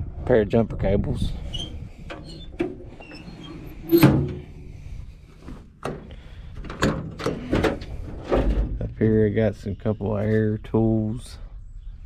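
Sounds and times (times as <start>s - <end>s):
metal toolbox doors clanking: 3.6s - 4.5s, 5.8s - 8.8s.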